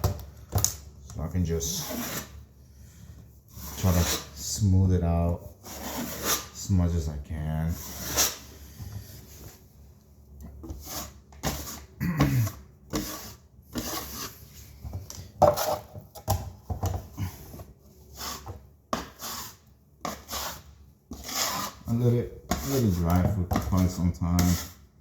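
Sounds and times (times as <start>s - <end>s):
putty knife scraping compound: 1.6s - 2.4s, 3.5s - 4.6s, 5.3s - 6.7s, 7.7s - 8.6s, 10.4s - 24.9s.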